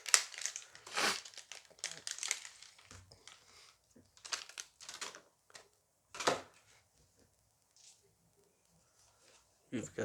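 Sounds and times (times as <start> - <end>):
packet crinkling: 0.0 - 3.4, 4.2 - 5.2.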